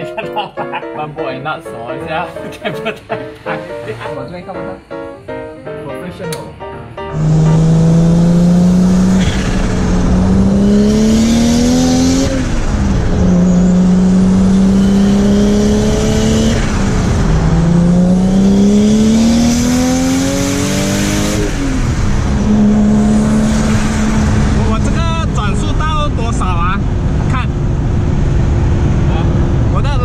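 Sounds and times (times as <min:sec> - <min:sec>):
car engine revving hard: 0:07.1 - 0:29.9.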